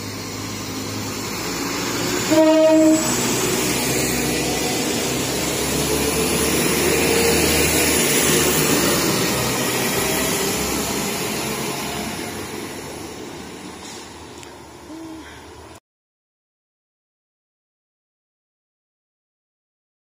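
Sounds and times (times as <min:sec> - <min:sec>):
train passing: 0:00.0 - 0:15.8.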